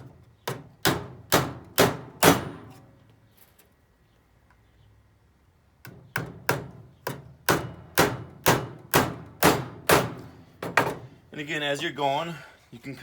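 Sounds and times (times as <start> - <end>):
hammer striking nail into wood: 0.4 - 2.8, 5.8 - 11.0.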